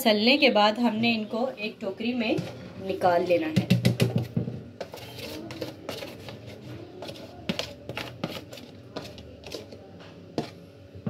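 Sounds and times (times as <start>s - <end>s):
plastic container knocking on basket: 3.6s - 4.6s.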